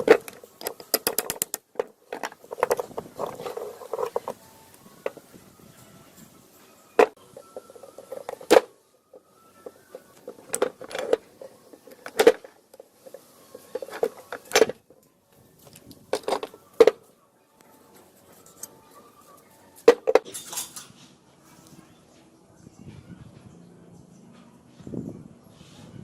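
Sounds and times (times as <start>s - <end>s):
metal parts knocking: 0.0s - 4.4s, 7.0s - 14.8s, 15.6s - 17.0s, 19.8s - 20.9s.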